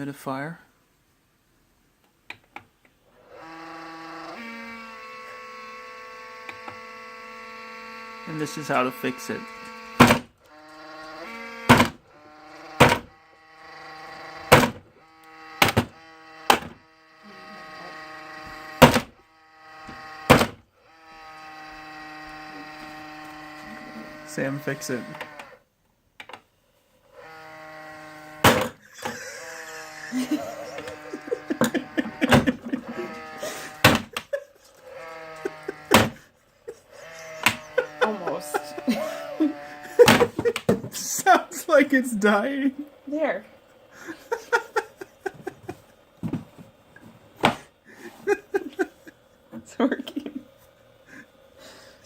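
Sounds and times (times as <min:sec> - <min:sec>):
humidifier motor humming whine: 0:27.2 - 0:52.0.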